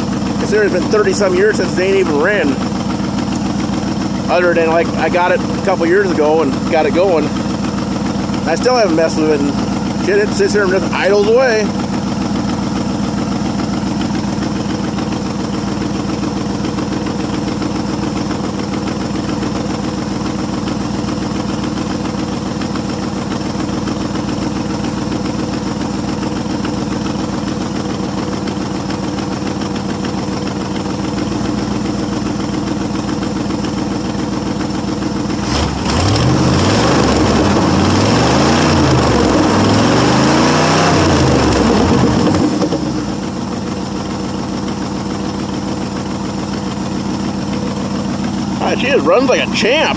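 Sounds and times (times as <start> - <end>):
pickup engine idling and revving: 0.0 - 49.9.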